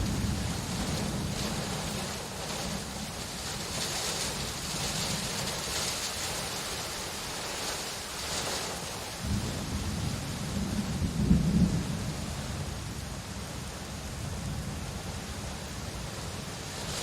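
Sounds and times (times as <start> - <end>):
low thunder rumble: 0.0 - 6.5, 9.2 - 15.1
steady rainfall hiss: 0.0 - 17.0.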